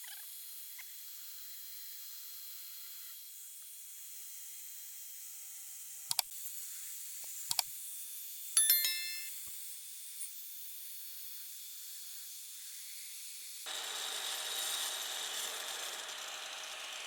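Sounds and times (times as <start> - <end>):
sharp ringing clink: 8.6 - 9.4.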